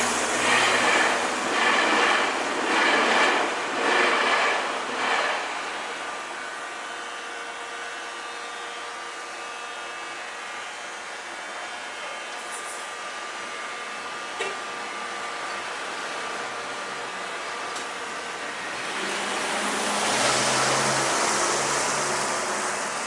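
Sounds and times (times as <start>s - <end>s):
train passing: 0.0s - 8.0s, 15.8s - 23.0s.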